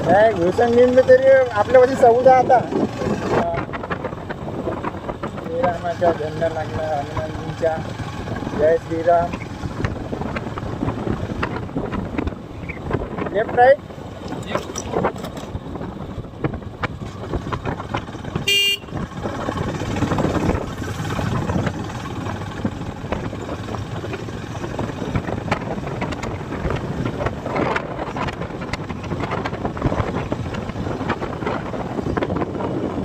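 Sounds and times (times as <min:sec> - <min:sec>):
motorcycle road noise: 0:00.0 - 0:33.0
wind buffeting microphone: 0:00.0 - 0:33.0
vehicle horn toot: 0:18.4 - 0:19.0.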